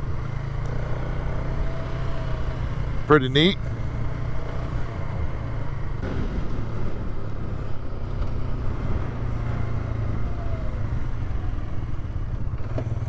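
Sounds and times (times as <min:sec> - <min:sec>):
quad engine humming: 0:00.0 - 0:13.0.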